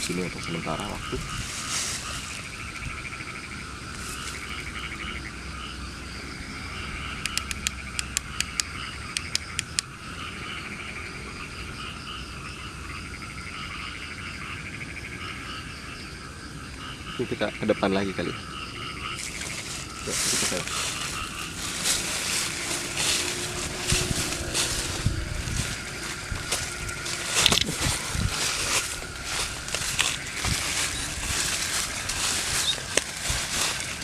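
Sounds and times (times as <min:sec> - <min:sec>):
frogs calling: 0:00.0 - 0:34.0
insects trilling: 0:00.0 - 0:34.0
sharp clicks: 0:07.2 - 0:09.9.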